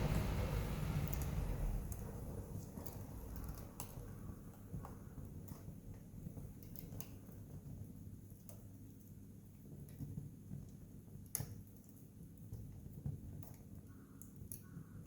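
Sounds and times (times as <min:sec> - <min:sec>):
faint low rumble: 0:00.0 - 0:06.0
wood fire crackling: 0:00.0 - 0:14.6.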